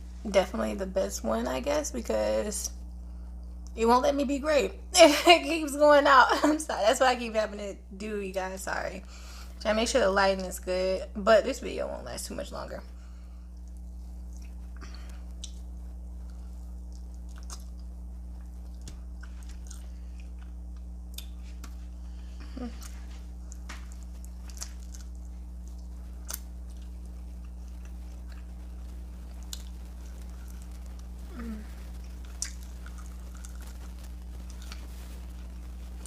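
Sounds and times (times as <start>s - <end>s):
steady low hum: 0.0s - 36.0s
crunchy chewing: 13.5s - 36.0s.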